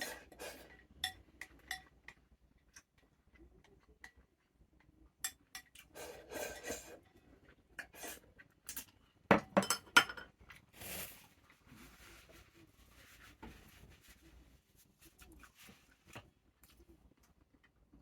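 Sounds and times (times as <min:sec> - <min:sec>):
utensils scraping dishes: 0:00.0 - 0:01.2, 0:05.9 - 0:07.0.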